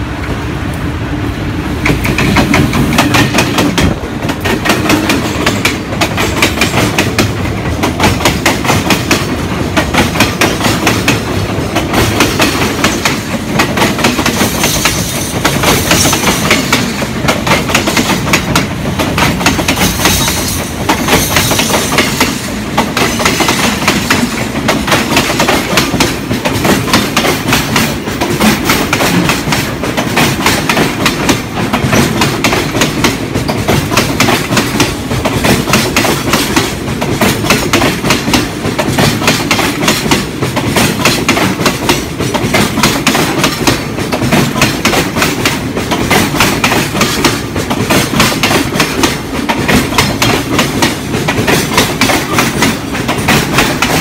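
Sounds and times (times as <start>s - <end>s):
train rumble: 0.0s - 54.0s
wheels clicking over rail joints: 1.8s - 54.0s.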